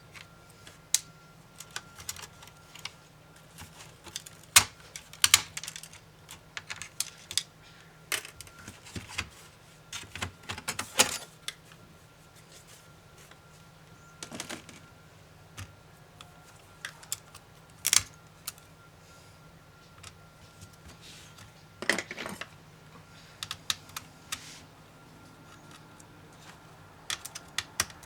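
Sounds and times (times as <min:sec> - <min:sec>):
small laptop parts clicking: 0:23.4 - 0:24.4, 0:25.4 - 0:28.0.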